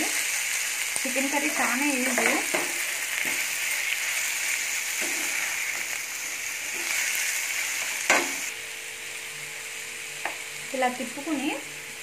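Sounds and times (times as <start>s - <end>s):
chicken sizzling in frying pan: 0.0s - 12.0s
spatula scraping pan: 4.9s - 5.9s.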